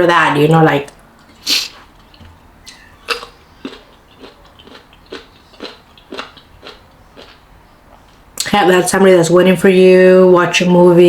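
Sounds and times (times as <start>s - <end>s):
wet crunchy chewing: 1.9s - 8.2s.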